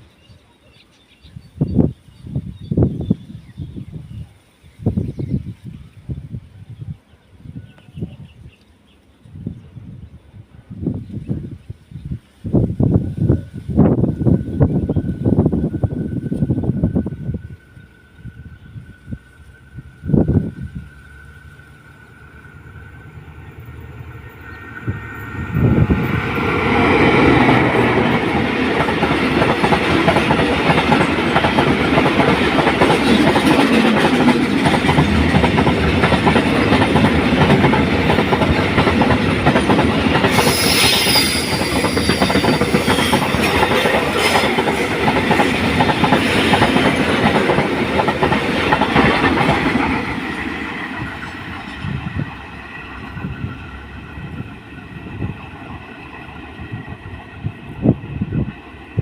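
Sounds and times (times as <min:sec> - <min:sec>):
train wheels clattering over rails: 0:24.9 - 0:53.5
high wheel squeal: 0:40.3 - 0:43.5.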